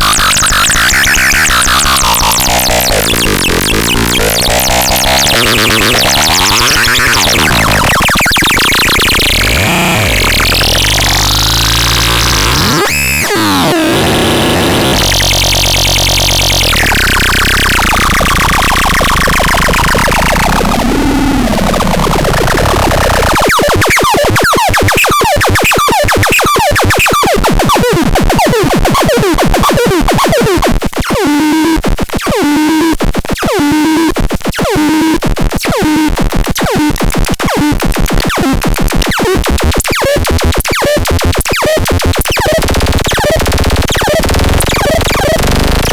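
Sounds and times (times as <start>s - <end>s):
short falling electronic chirps: 0.0s - 13.3s
long falling electronic sweep: 0.0s - 23.4s
harsh synthetic buzzing tones: 0.0s - 25.0s, 40.7s - 45.9s.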